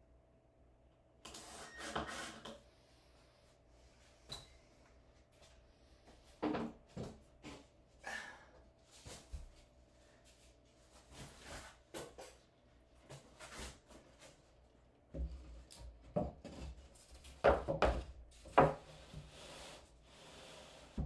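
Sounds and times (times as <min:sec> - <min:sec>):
wood knocks and scrapes: 0:16.1 - 0:19.6.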